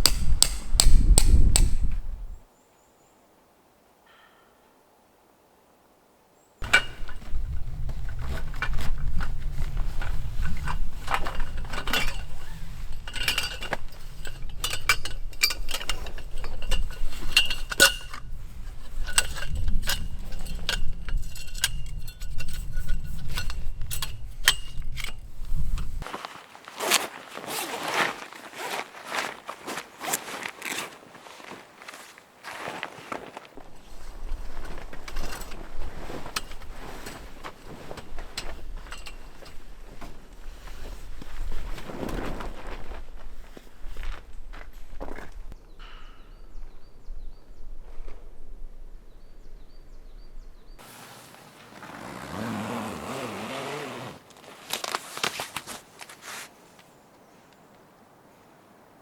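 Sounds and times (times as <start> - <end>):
small hard items clinking: 6.6 - 26.1.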